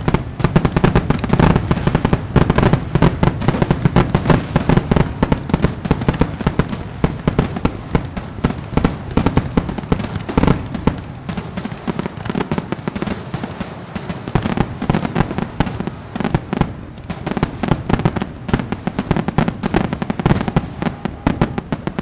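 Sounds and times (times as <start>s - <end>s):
deep firework booms: 0.0s - 22.0s
fireworks crackling and banging: 0.0s - 22.0s.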